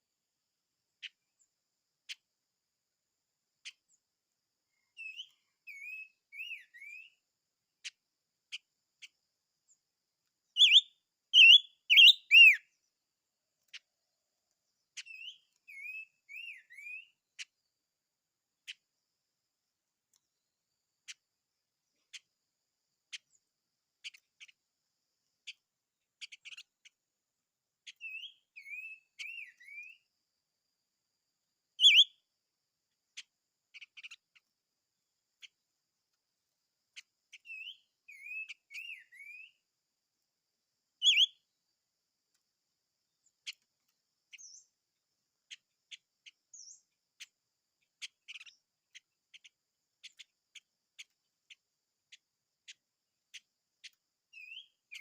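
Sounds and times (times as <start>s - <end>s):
small bird chips and ticks: 0.8s - 55.0s
loud sharp bird calls: 10.6s - 12.6s, 31.8s - 32.1s, 37.4s - 39.5s, 41.0s - 41.3s
bird warbling: 11.4s - 12.6s.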